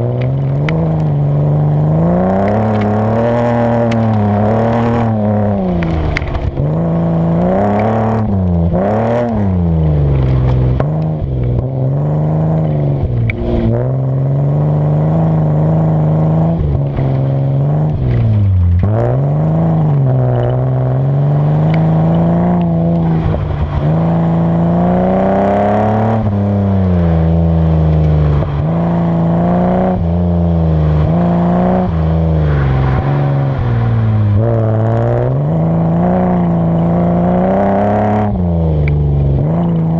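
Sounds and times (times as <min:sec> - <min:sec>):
car engine revving: 0:00.0 - 0:39.9
gravel scraping and clattering under car: 0:03.8 - 0:11.7, 0:16.6 - 0:19.1.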